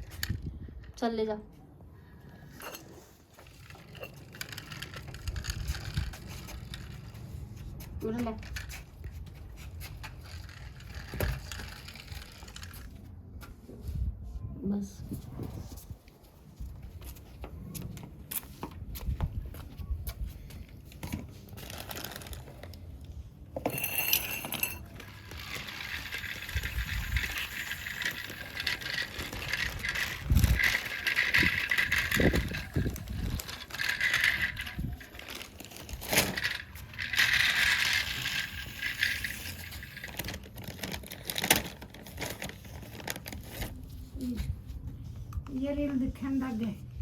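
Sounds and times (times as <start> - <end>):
toy vehicles rattling and clinking: 2.3 - 13.1, 21.0 - 43.8.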